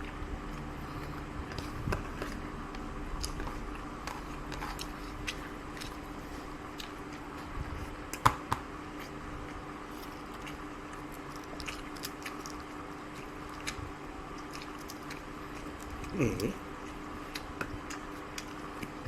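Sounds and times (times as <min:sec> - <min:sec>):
chewing with wet clicks: 0:00.0 - 0:07.5, 0:09.0 - 0:19.0.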